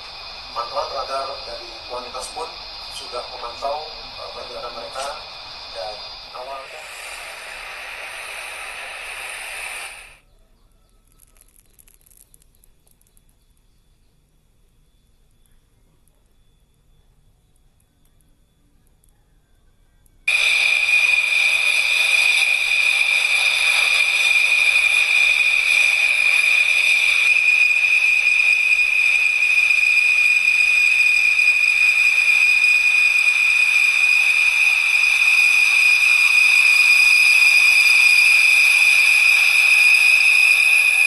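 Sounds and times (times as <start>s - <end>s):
fighter jet engine whine: 0.0s - 10.2s, 20.3s - 41.0s.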